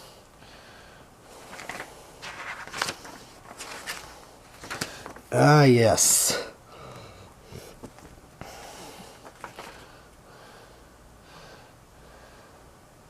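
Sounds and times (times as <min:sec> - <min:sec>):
soft rustling of papers: 0:01.3 - 0:05.5, 0:07.5 - 0:10.2.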